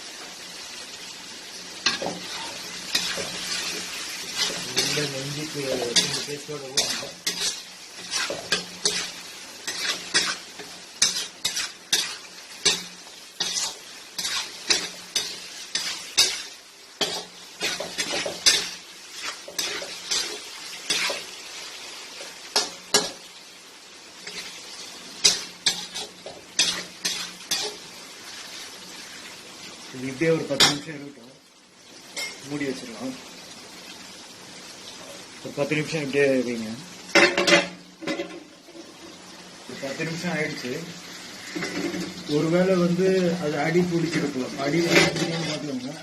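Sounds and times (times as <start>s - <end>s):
chicken frying in oil: 0.0s - 46.0s
spoon scraping and knocking pan: 1.9s - 21.3s, 25.2s - 27.8s.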